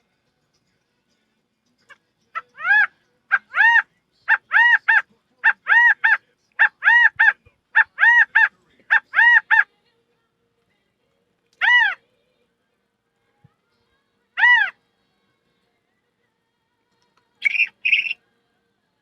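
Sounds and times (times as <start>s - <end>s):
bird-like honking calls: 17.4s - 18.2s.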